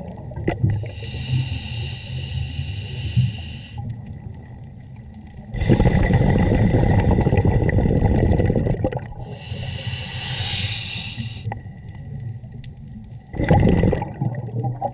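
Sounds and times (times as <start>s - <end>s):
regulator hissing inhale: 0.8s - 3.8s, 9.3s - 11.6s
bubbly underwater exhale: 5.5s - 11.6s, 13.3s - 14.9s.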